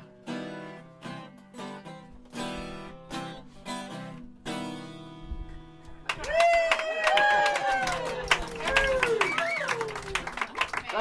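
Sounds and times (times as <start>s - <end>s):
acoustic guitar strumming chords: 0.0s - 6.1s.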